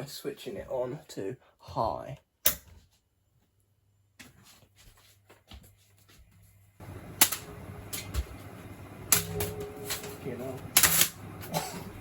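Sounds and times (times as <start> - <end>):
ceiling fan motor and air rush: 6.8 - 12.0.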